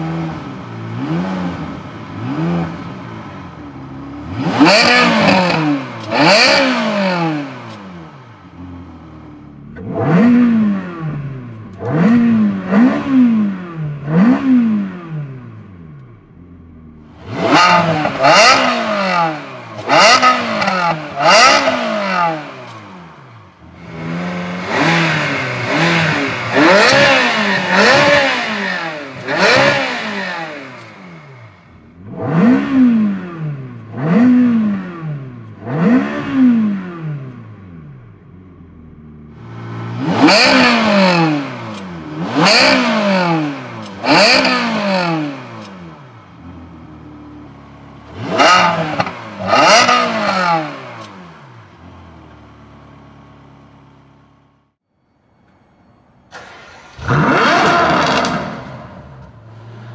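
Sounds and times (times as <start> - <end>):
car engine revving: 0.0 - 54.8, 56.3 - 59.9
car engine idling: 7.5 - 12.8, 46.0 - 49.9, 51.3 - 59.9.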